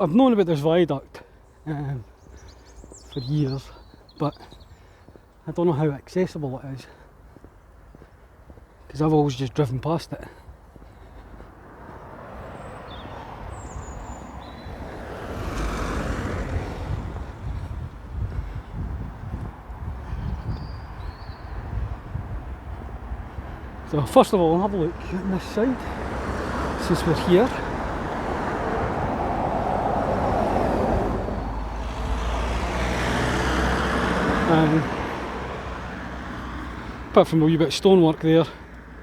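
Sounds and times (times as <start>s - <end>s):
vehicle passing: 10.5s - 39.0s
wind rumbling on microphone: 11.6s - 23.9s, 25.9s - 36.5s.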